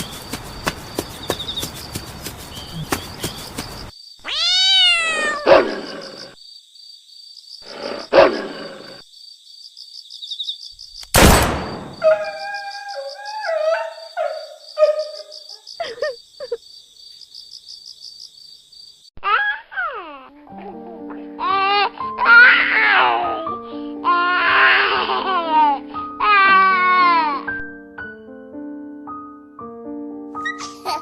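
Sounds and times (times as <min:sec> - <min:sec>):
short stepped calls: 0:00.0 - 0:03.9
sharp snarls or barks: 0:05.2 - 0:06.4, 0:07.7 - 0:09.0
loud burst: 0:11.2 - 0:12.0.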